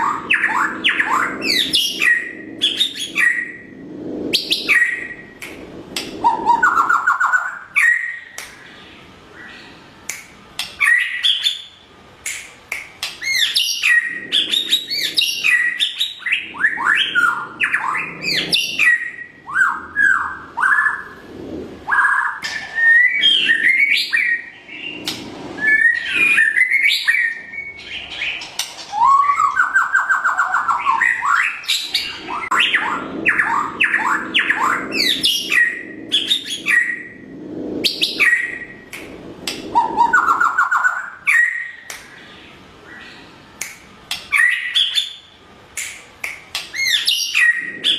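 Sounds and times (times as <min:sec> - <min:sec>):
bird singing whistled song: 0:00.0 - 0:03.7, 0:04.3 - 0:05.3, 0:06.2 - 0:08.4, 0:13.2 - 0:21.1, 0:21.9 - 0:37.2, 0:37.9 - 0:38.8, 0:39.7 - 0:41.9, 0:44.3 - 0:45.3, 0:46.7 - 0:47.9.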